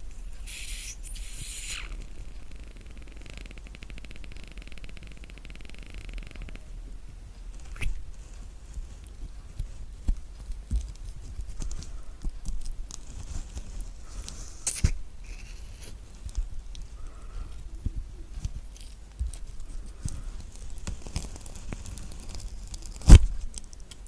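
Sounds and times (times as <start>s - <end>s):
spoon scraping kiwi fruit: 14.7s - 16.0s.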